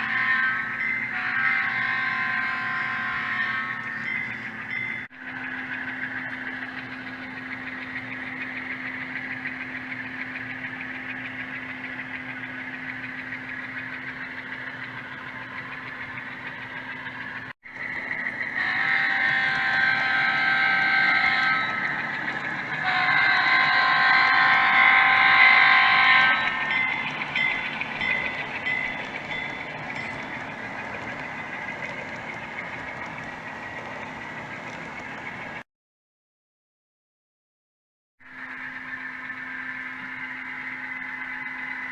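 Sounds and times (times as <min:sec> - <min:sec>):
multi-note air horn blasts: 0:00.0 - 0:03.9, 0:18.6 - 0:21.8, 0:22.8 - 0:26.7
simulated diesel engine hum: 0:00.0 - 0:35.6, 0:38.2 - 0:41.9.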